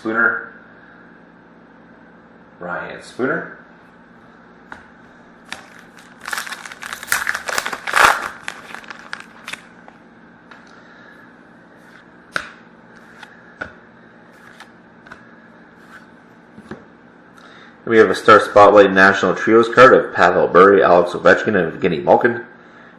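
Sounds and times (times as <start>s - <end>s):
wrapper crinkling and tearing: 5.5s - 9.8s.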